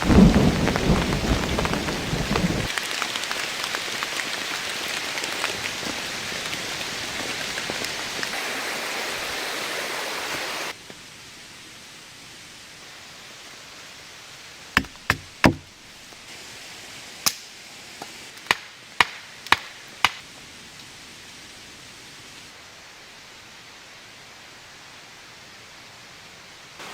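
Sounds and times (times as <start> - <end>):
heavy rain hissing: 0.0 - 26.9
sharp knocks: 14.8 - 15.7.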